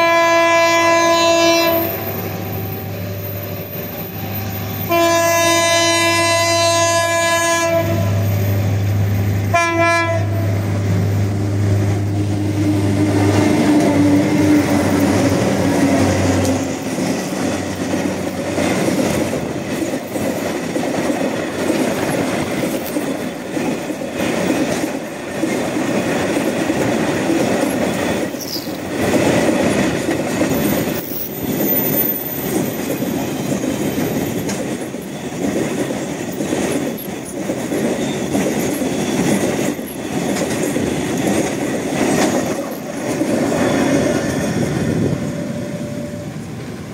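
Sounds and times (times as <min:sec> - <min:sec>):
train horn blast: 0:00.0 - 0:02.1, 0:04.8 - 0:08.8, 0:09.4 - 0:10.8
diesel locomotive engine droning: 0:00.0 - 0:46.9.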